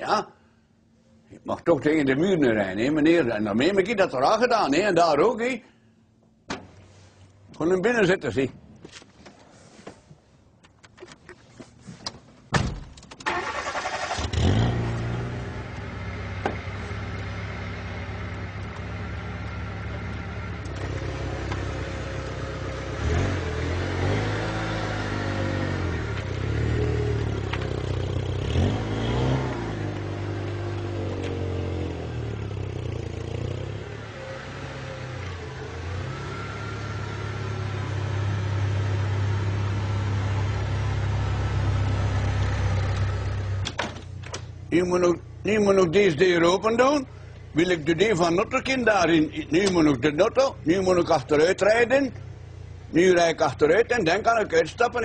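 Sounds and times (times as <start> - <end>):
car engine revving: 13.3 - 43.6.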